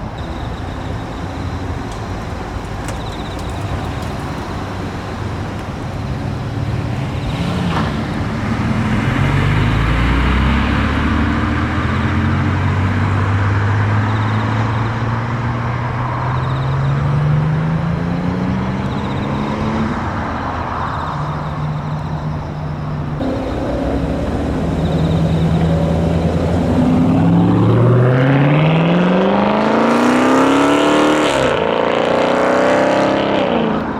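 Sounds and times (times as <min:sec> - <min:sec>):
car engine running loudly: 0:00.0 - 0:33.9.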